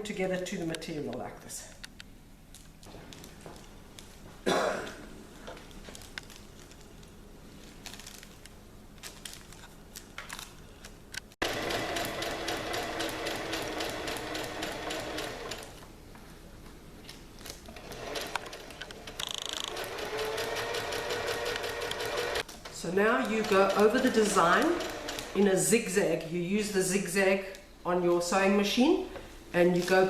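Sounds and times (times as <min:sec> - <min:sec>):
sewing machine stitching: 0:11.4 - 0:15.8, 0:17.8 - 0:22.5, 0:23.2 - 0:25.4.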